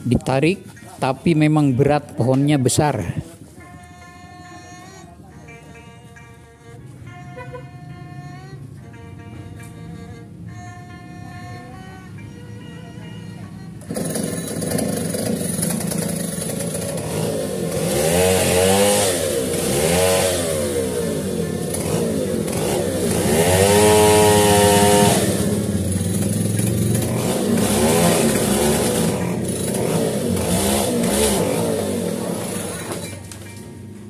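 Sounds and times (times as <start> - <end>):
small petrol engine revving: 13.7 - 34.0.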